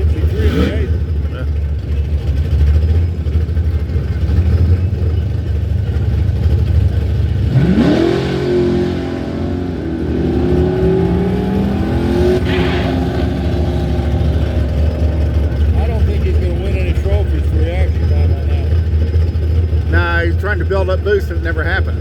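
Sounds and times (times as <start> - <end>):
drag racing engines rumbling: 0.0 - 22.0
engine accelerating: 0.0 - 22.0.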